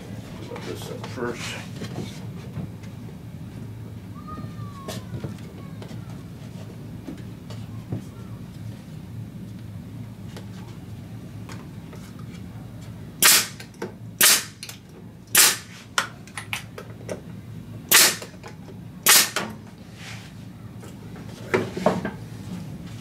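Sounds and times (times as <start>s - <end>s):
nail gun shots into wood: 13.2s - 13.6s, 14.2s - 14.7s, 15.3s - 15.7s, 17.9s - 18.3s, 19.0s - 19.5s.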